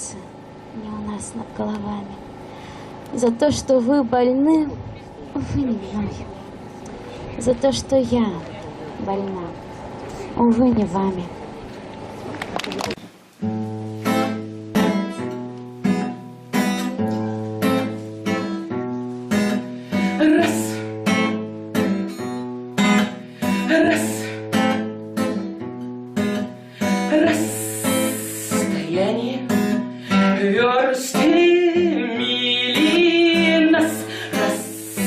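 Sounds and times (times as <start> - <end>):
acoustic guitar strumming: 13.4 - 35.0.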